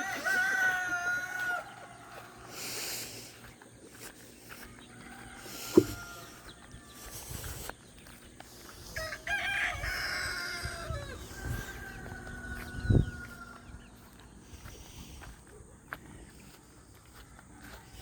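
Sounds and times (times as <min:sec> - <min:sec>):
rooster crowing: 0:00.0 - 0:02.5, 0:04.6 - 0:07.2, 0:08.9 - 0:14.1, 0:17.0 - 0:18.0
chickens calling faintly: 0:00.0 - 0:18.0.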